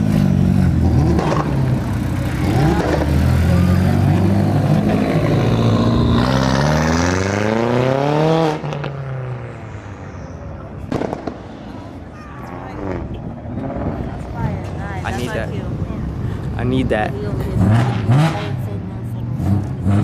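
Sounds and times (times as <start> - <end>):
car engine revving: 0.0 - 9.9, 15.2 - 20.0.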